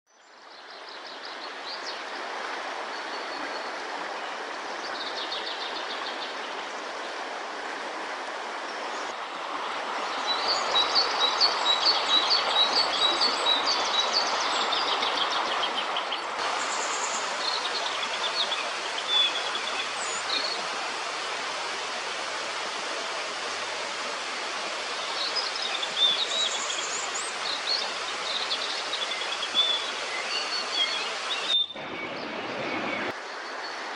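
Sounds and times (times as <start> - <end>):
river water rushing: 0.7 - 33.9
songbirds singing and calling: 10.0 - 20.7, 24.8 - 33.8.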